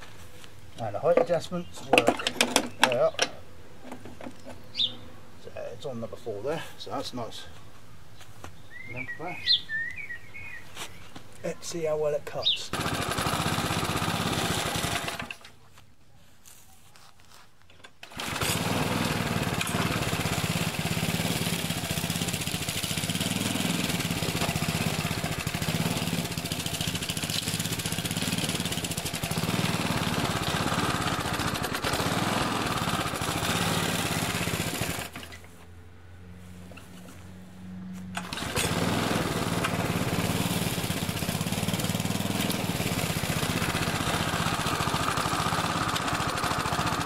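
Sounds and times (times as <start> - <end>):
lawn mower cutting grass: 12.7 - 15.5, 18.0 - 47.0.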